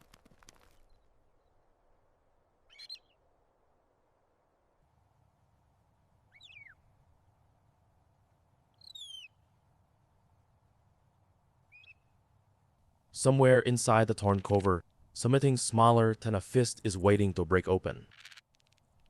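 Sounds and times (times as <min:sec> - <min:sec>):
short falling bird whistles: 0:08.8 - 0:09.3.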